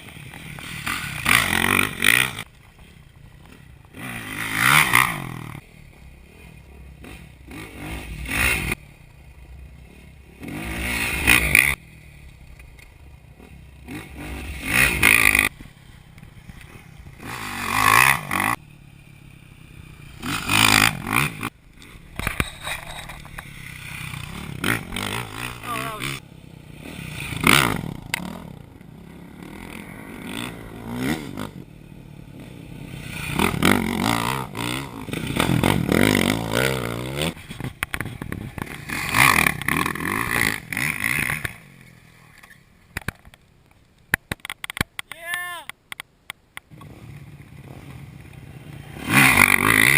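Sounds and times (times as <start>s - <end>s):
dirt bike engine revving: 0.0s - 42.1s, 46.7s - 49.9s.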